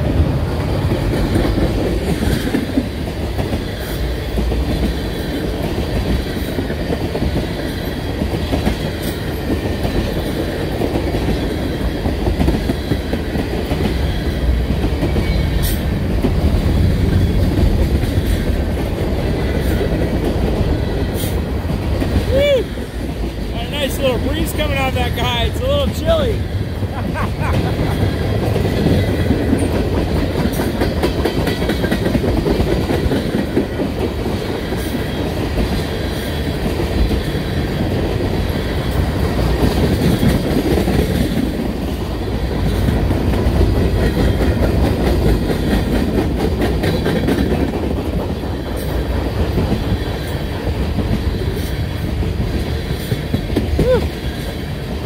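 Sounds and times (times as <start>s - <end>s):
freight train wheels rumbling: 0.0s - 55.0s
wheels clicking over rail joints: 27.8s - 54.9s.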